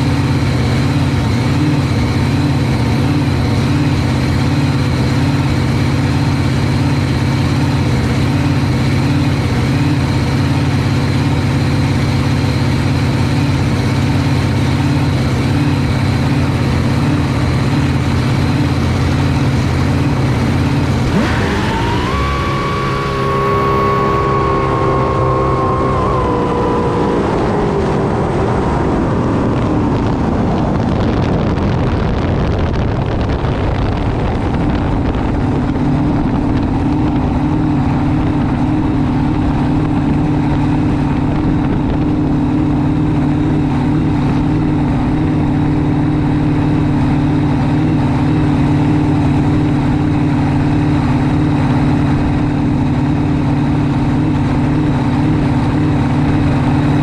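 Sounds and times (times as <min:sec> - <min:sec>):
boat race engine winding down: 0:18.5 - 0:32.2.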